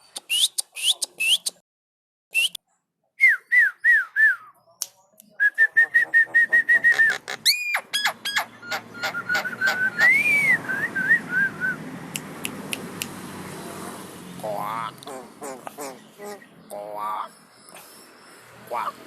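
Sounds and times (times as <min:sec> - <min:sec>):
bird whistling song: 0:00.2 - 0:01.6, 0:02.3 - 0:02.6, 0:03.2 - 0:04.6, 0:05.4 - 0:11.8.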